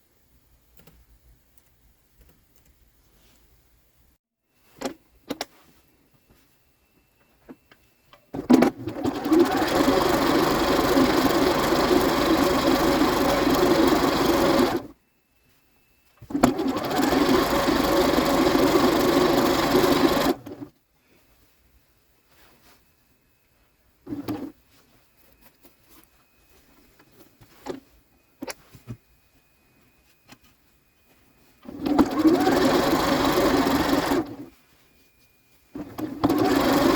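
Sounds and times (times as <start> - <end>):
sewing machine stitching: 8.4 - 14.9, 16.2 - 20.7, 24.1 - 24.5, 31.6 - 34.5, 35.8 - 36.9.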